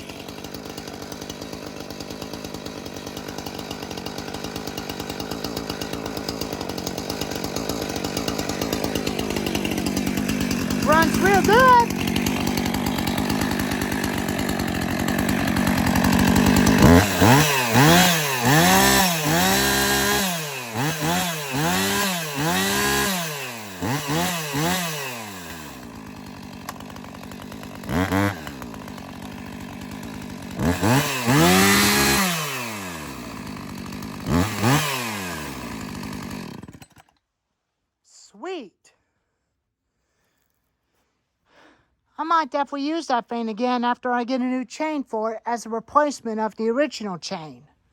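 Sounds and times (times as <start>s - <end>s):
chainsaw revving: 0.0s - 37.2s.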